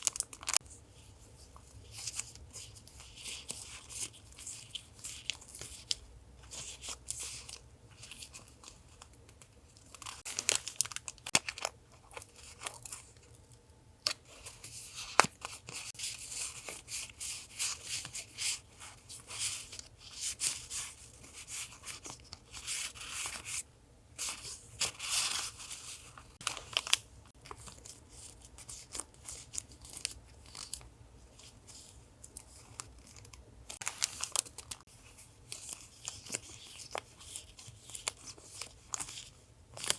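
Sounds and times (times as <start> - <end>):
paper crinkling and tearing: 9.9 - 13.1, 24.2 - 39.9.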